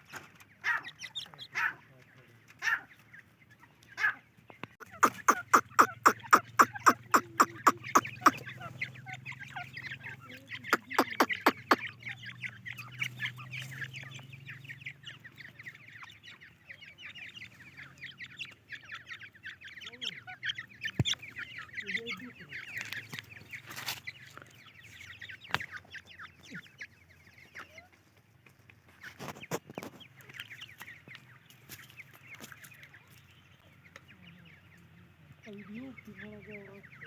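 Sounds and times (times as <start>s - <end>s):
chatter of quieter bird calls: 0.0s - 37.0s
partridges calling loud sharp notes: 4.8s - 27.8s.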